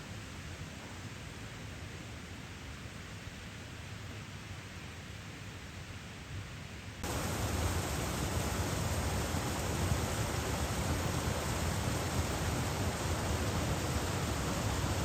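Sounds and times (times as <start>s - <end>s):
steady rushing noise: 7.0s - 15.0s.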